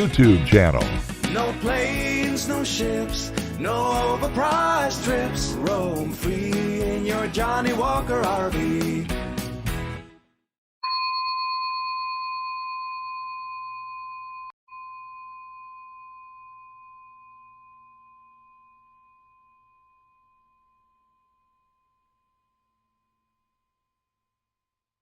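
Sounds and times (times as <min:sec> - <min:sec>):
bell-like chime ringing: 0:10.8 - 0:21.9.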